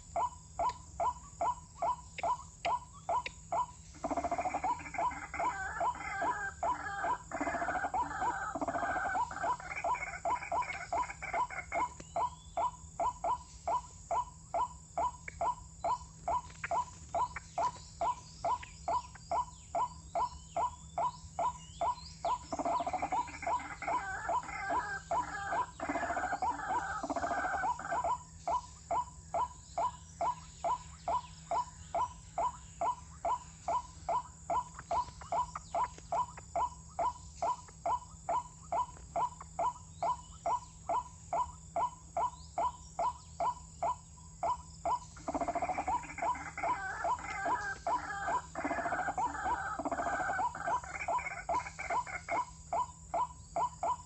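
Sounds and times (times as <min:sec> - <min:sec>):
harsh noisy bird calling: 0:00.0 - 0:54.0
waterhen calling: 0:22.6 - 0:28.1, 0:45.2 - 0:52.5.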